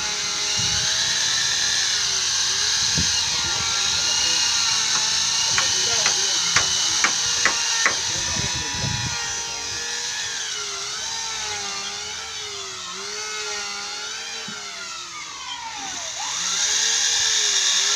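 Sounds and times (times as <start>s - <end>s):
power drill whining into wood: 0.0s - 17.9s
sharp knocks: 4.9s - 8.2s.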